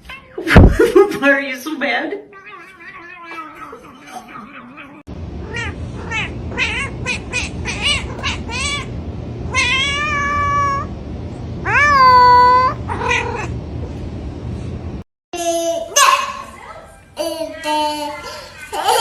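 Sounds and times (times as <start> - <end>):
cat meowing: 2.3 - 10.9, 11.6 - 13.6
steady low hum: 5.1 - 15.0.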